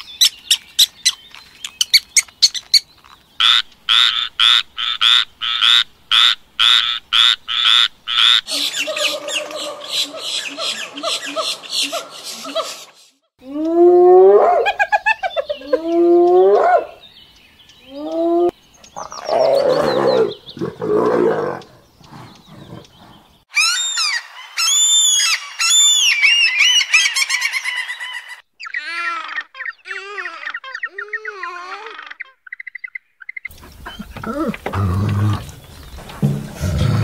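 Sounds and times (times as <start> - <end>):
high bird-like calls: 6.2 - 13.1, 23.5 - 35.9
hyenas whooping: 18.0 - 21.7, 33.5 - 35.6.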